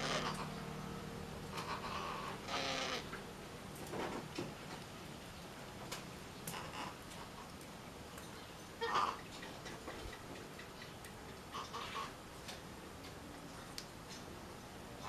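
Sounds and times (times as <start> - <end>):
faint scattered clicks: 9.2 - 11.8, 12.4 - 14.4.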